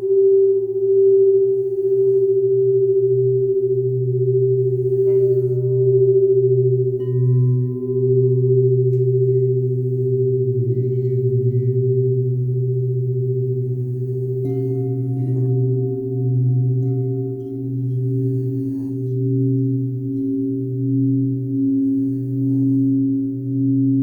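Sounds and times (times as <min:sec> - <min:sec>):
singing bowls ringing: 0:00.0 - 0:24.0.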